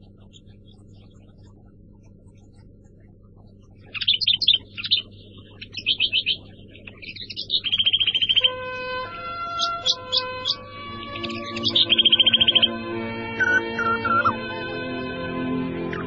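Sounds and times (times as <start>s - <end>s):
birds chirping and trilling: 0.0s - 16.0s
held synthesizer note: 8.3s - 16.0s.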